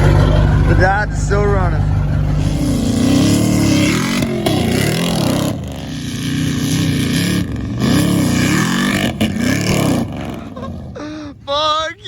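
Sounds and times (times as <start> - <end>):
pickup truck engine revving: 0.0 - 11.4.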